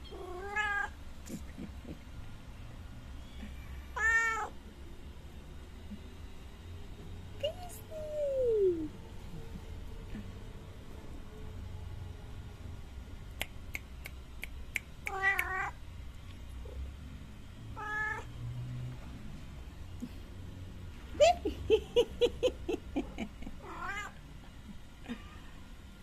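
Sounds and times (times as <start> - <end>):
cat meowing: 0.1 - 0.9, 3.3 - 4.5, 17.8 - 18.3, 23.6 - 24.2.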